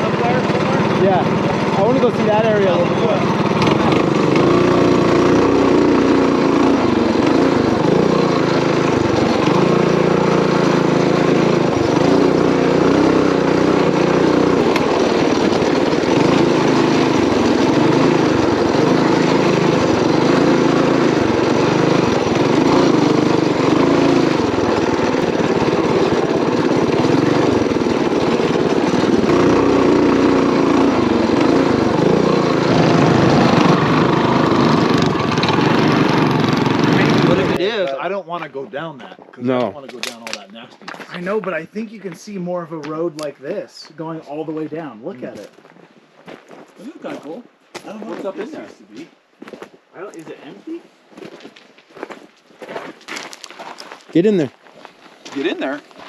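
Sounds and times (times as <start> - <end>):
mini bike engine running: 0.0 - 37.8.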